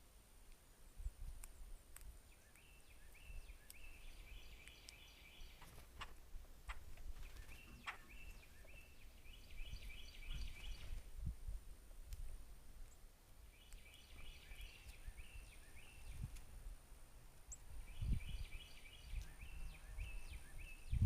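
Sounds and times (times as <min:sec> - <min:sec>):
songbirds whistling: 0:02.3 - 0:06.1, 0:06.7 - 0:11.0, 0:13.6 - 0:16.3, 0:17.5 - 0:21.0
low wind rumble: 0:06.2 - 0:12.8, 0:13.4 - 0:21.0.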